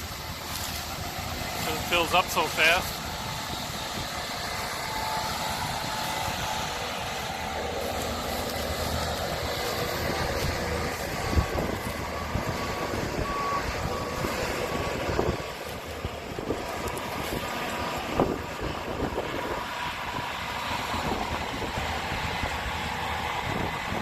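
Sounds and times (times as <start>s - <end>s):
machinery engines running: 0.0s - 24.0s
backup alarm beeping: 10.1s - 14.9s.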